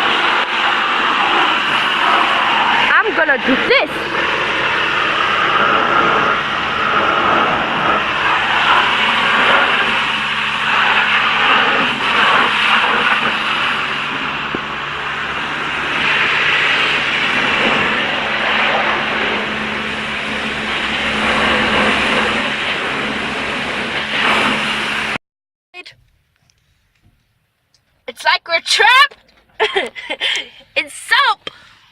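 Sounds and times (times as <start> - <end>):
car wash water spray: 0.0 - 25.2
steady machine hum: 0.0 - 25.2.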